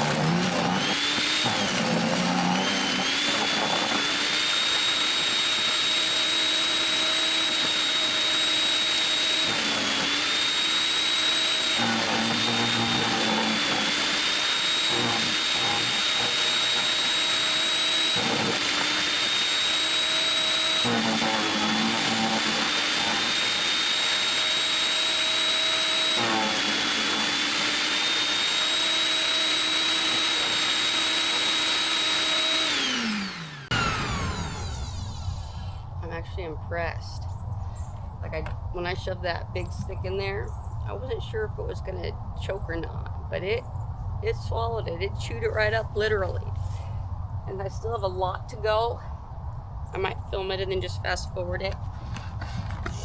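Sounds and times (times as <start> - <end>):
wood chipper motor whine: 0.0 - 36.0.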